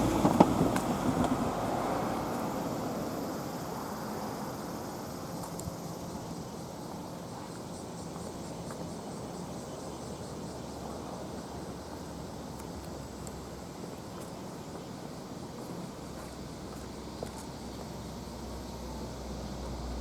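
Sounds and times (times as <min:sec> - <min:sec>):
train rumble receding: 0:00.0 - 0:05.4
outdoor background noise: 0:00.0 - 0:20.0.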